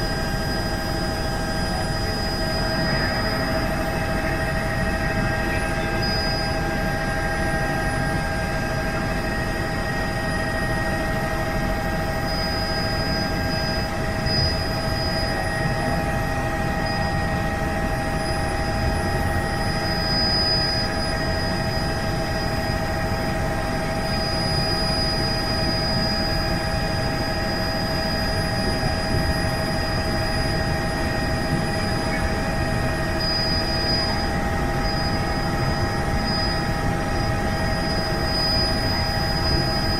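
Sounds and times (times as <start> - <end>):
helicopter engine and rotor: 0.0 - 39.9
whining tones: 0.0 - 39.9.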